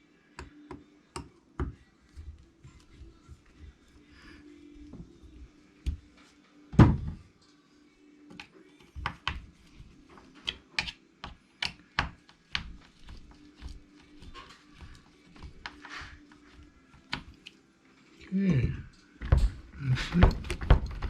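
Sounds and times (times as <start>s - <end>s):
hand tools clicking and tapping: 10.4s - 17.6s.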